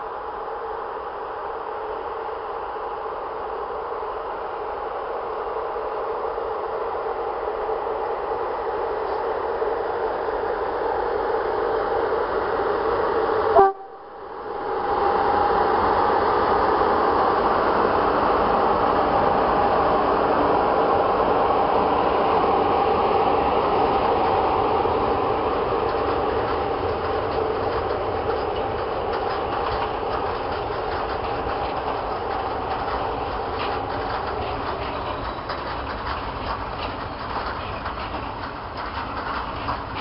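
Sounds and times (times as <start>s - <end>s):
freight train rolling past: 0.0s - 40.0s
wheels clattering over rail joints: 23.8s - 40.0s.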